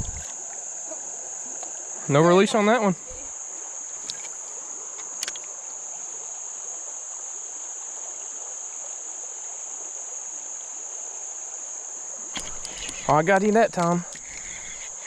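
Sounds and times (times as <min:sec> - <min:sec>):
creek water rushing: 0:00.0 - 0:15.0
insects droning: 0:00.0 - 0:15.0
sharp click: 0:12.4 - 0:13.1.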